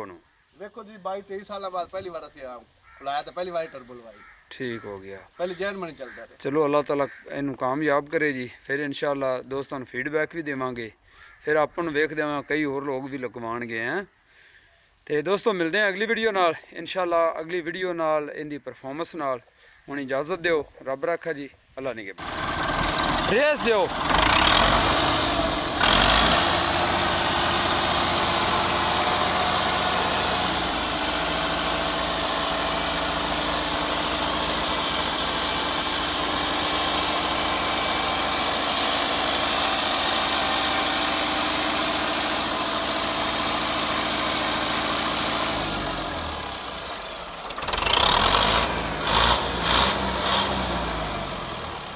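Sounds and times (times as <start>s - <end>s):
short loud engine bursts: 22.2s - 51.9s
tractor diesel engine running: 22.2s - 51.9s.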